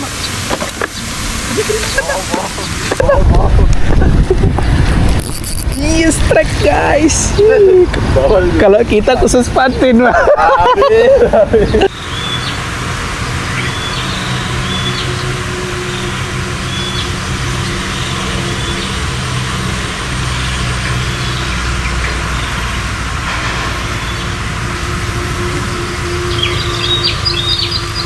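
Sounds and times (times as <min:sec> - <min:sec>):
high bird chirps: 0:11.9 - 0:12.6, 0:13.5 - 0:19.2, 0:25.9 - 0:28.0.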